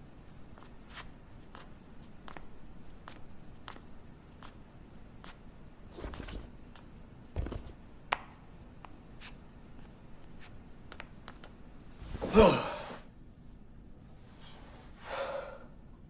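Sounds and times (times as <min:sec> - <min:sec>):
person sighing: 0:12.2 - 0:13.0.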